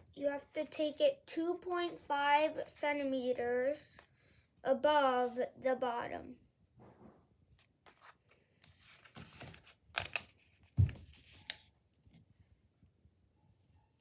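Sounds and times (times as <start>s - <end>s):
paper rustling and crackling: 7.6s - 12.3s.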